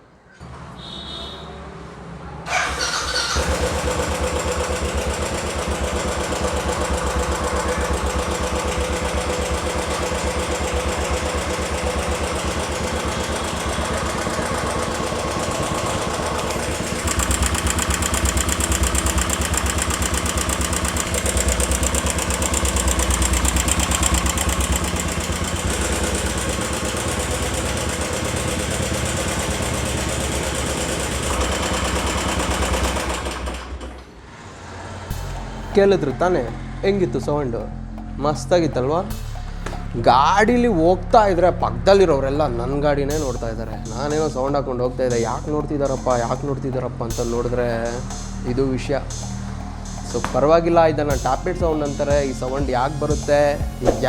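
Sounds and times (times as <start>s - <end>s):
motorcycle engine starting and running: 2.5s - 54.0s
rapid tappet ticking: 3.4s - 33.5s.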